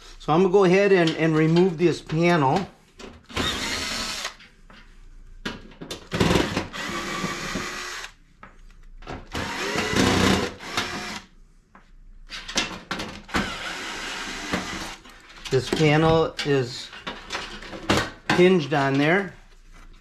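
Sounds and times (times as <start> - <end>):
cordless drill whirring: 3.3 - 4.4, 6.1 - 8.2, 9.3 - 11.3, 13.3 - 15.0.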